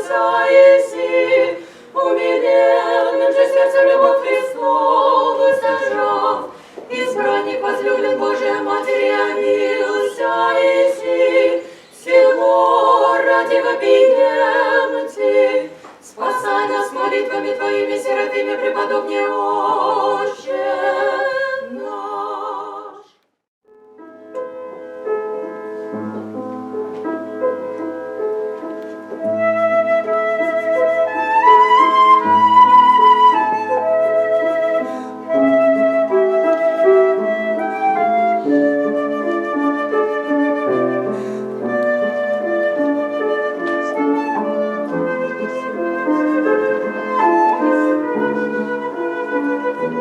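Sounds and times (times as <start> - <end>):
piano accompaniment: 0.0 - 21.6, 23.7 - 50.0
flute melody with vibrato: 29.2 - 50.0.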